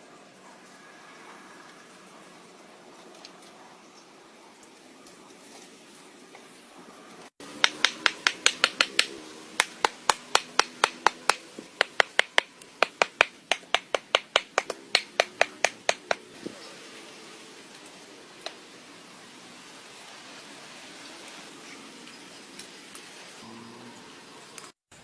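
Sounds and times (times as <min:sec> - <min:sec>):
sharp rapid knocks: 0:07.6 - 0:16.2.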